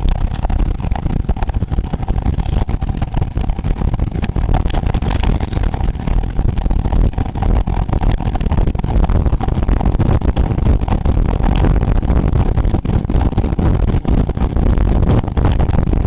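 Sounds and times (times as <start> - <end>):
road noise: 0.0 - 14.6
wind buffeting microphone: 0.0 - 16.0.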